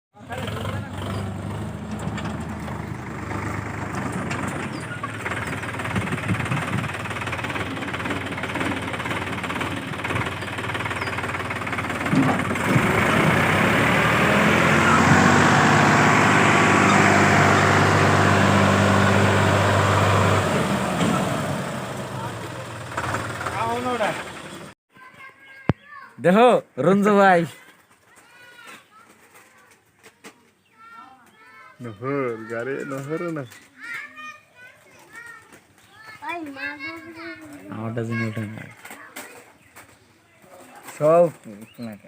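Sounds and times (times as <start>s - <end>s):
tractor diesel engine revving: 0.2s - 24.8s.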